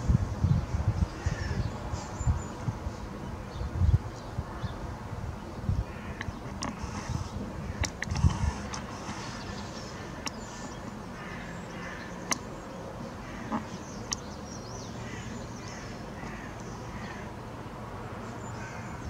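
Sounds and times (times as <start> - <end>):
faint bird calls: 5.8 - 17.4.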